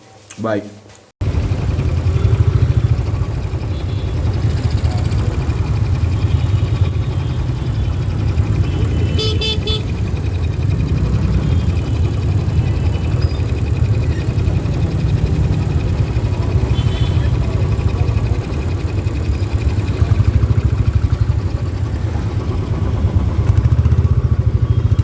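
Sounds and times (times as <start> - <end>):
traffic engines rumbling: 1.2 - 25.0
vehicle horn beeps: 6.0 - 10.2, 16.5 - 17.8.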